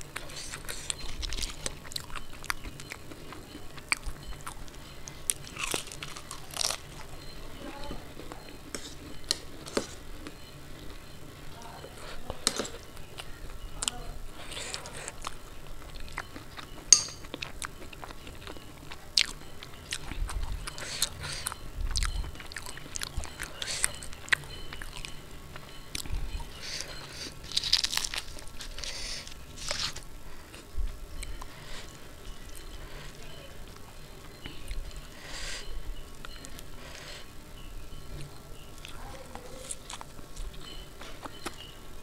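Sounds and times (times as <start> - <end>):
wet chewing and smacking: 0.0 - 41.8
spoon clicking on steel bowls: 16.9 - 17.4.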